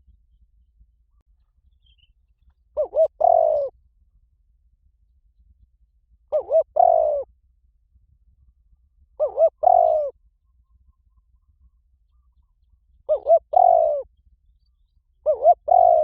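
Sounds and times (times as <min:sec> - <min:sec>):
dove cooing: 0:02.8 - 0:03.7, 0:06.3 - 0:07.3, 0:09.2 - 0:10.2, 0:13.1 - 0:14.1, 0:15.2 - 0:16.0.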